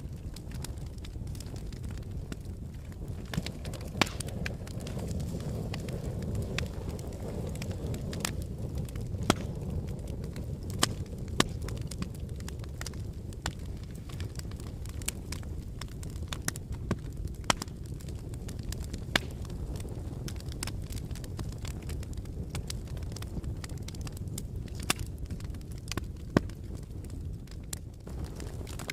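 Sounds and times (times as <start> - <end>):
fire crackling and popping: 0.0 - 28.9
low rumble of flames: 0.0 - 28.9
loud wood snaps: 3.2 - 5.0, 9.2 - 9.6, 14.9 - 17.7, 19.1 - 19.5.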